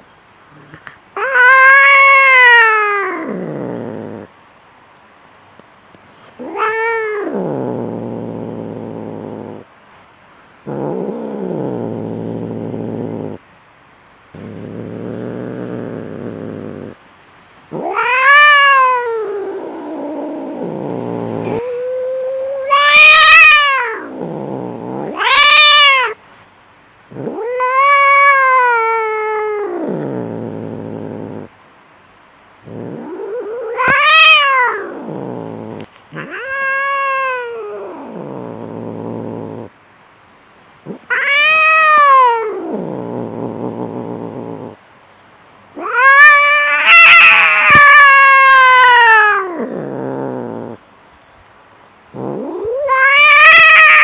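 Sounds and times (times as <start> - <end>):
cats growling: 0.0 - 4.4, 6.2 - 9.8, 10.6 - 13.4, 14.3 - 17.0, 17.7 - 26.2, 27.1 - 31.6, 32.6 - 39.8, 40.8 - 44.8, 45.7 - 50.8, 52.1 - 54.0
cats yowling: 1.2 - 4.3, 6.4 - 9.6, 17.7 - 26.2, 27.1 - 31.5, 32.7 - 39.7, 40.9 - 44.8, 45.8 - 50.8, 52.2 - 54.0.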